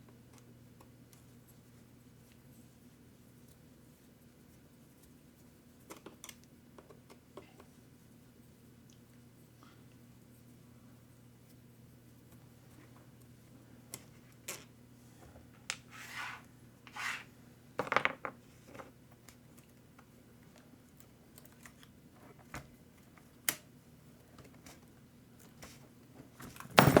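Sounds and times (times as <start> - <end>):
tools clattering: 26.7 - 27.0.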